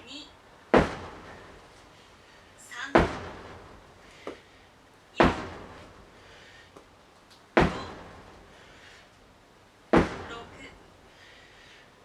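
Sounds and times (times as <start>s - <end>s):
sledgehammer striking heavily: 0.8s - 1.3s, 5.2s - 6.0s, 7.6s - 8.2s.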